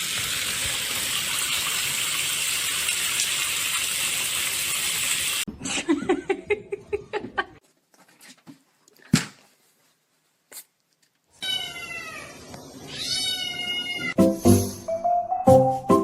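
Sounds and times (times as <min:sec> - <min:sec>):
cat meowing: 0:11.4 - 0:14.2
music with stepped notes: 0:14.2 - 0:16.0.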